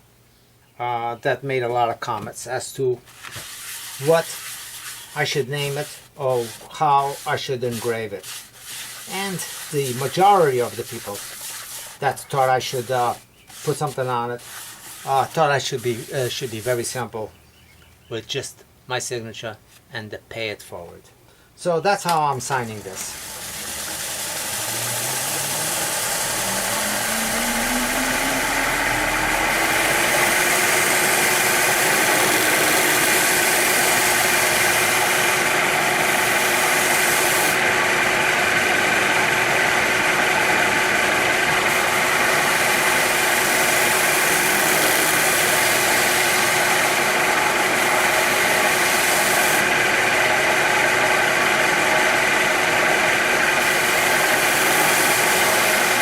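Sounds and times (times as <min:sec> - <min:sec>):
power tool motor whine: 0:23.0 - 0:56.0.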